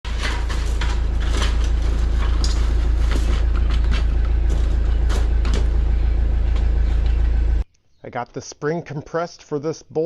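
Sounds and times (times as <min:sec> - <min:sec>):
engine running: 0:00.0 - 0:07.6.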